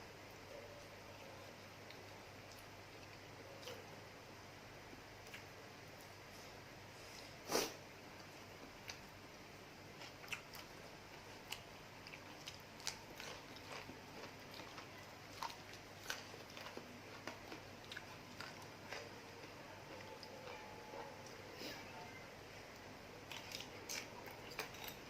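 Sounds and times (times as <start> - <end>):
chewing and biting food: 9.9 - 21.4, 23.2 - 25.0.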